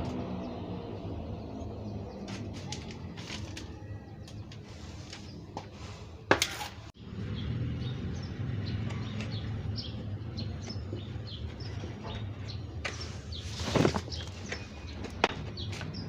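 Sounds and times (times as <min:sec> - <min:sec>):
small birds chirping: 0:07.0 - 0:16.0.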